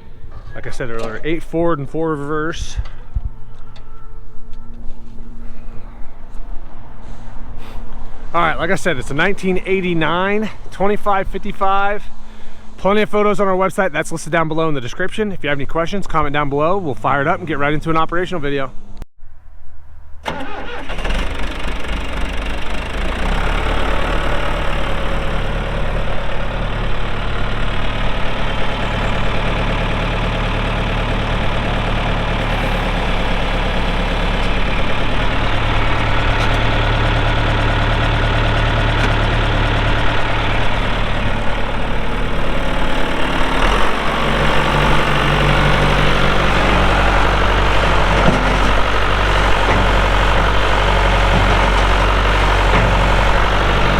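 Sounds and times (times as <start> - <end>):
diesel engine cranking: 0.0 - 11.2, 20.2 - 53.9
diesel engine idling: 20.2 - 53.9.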